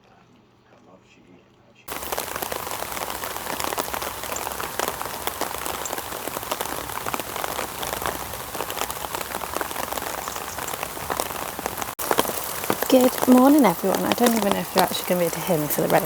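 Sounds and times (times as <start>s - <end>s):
heavy rain falling: 1.9s - 16.0s.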